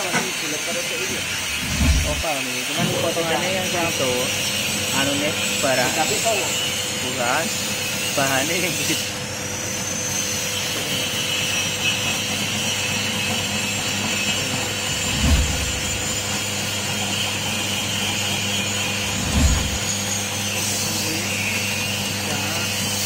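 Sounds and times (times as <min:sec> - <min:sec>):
slicing machine humming and hissing: 0:00.0 - 0:23.0
dull low thumps: 0:01.4 - 0:02.2, 0:15.0 - 0:16.4, 0:19.0 - 0:19.9.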